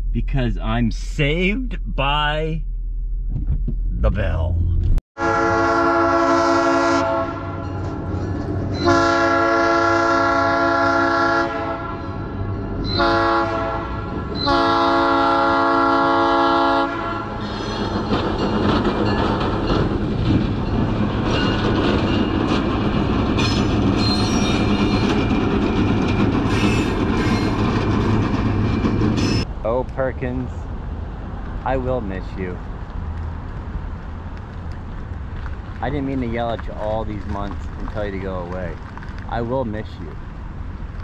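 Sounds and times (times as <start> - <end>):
train rumbling past: 3.9 - 40.9
train horn blasts: 5.2 - 7.8, 8.8 - 17.6
high wheel squeals: 7.6 - 9.0, 17.3 - 19.8, 23.4 - 25.4, 26.2 - 29.5
clickety-clack of train wheels: 17.4 - 29.4, 35.4 - 39.5.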